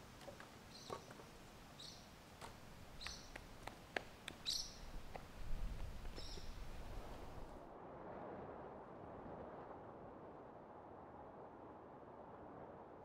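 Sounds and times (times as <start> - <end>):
high bird chirps: 1.8 - 2.1, 3.0 - 3.4, 4.4 - 5.0, 6.1 - 6.7.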